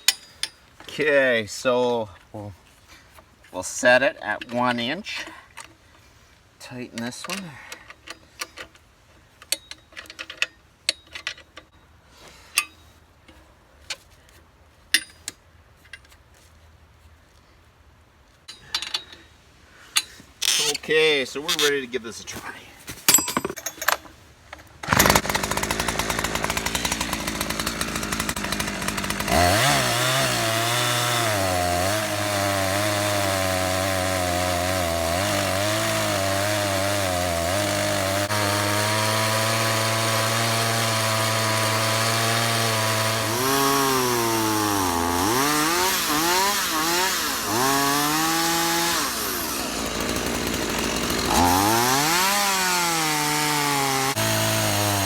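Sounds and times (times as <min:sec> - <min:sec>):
chainsaw cutting log: 0:24.8 - 0:55.0.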